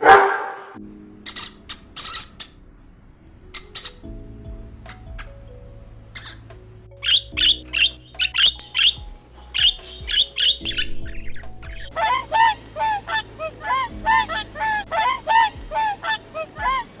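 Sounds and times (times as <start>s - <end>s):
bird lower repeated calls: 1.3s - 2.6s, 3.6s - 4.0s, 4.9s - 5.4s, 6.2s - 6.4s, 11.9s - 17.0s
bird quick sharp high calls: 1.3s - 2.6s, 3.6s - 4.0s, 6.2s - 6.4s.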